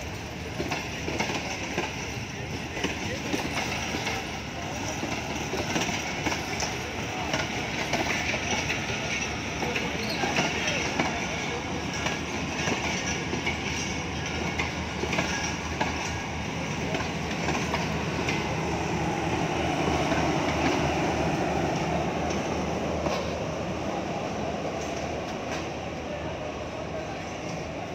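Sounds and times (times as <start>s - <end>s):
train wheels rumbling on rails: 0.0s - 27.9s.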